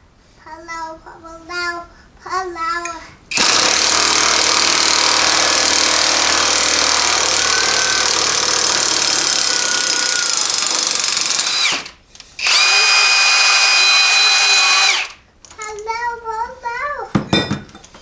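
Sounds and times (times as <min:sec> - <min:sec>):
impact wrench running: 0:03.3 - 0:15.3.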